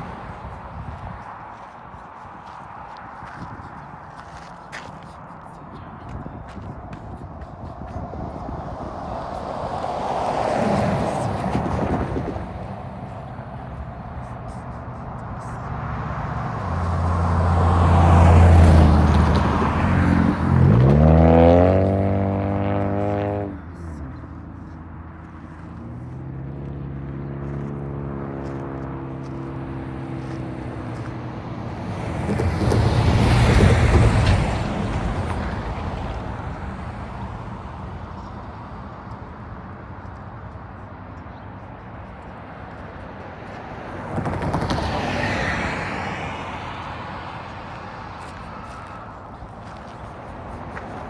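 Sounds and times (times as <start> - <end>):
vehicles passing: 0.0 - 51.0
engine revving: 15.9 - 23.6.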